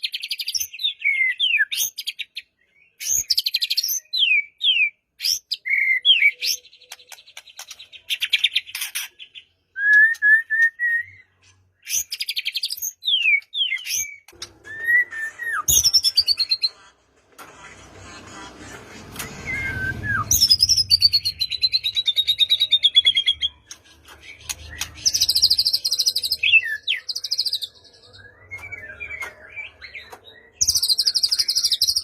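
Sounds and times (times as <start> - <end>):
songbird singing rapid whistles: 9.7 - 11.2, 19.4 - 23.5, 24.5 - 32.0.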